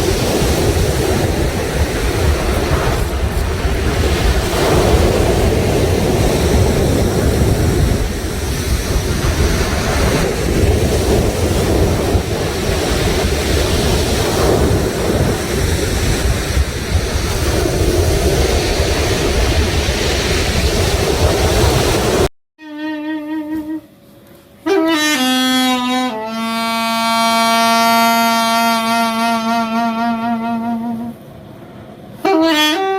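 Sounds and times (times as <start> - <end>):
sea surf washing against shore: 0.0 - 22.3, 24.6 - 32.9
wind buffeting microphone: 0.0 - 22.3.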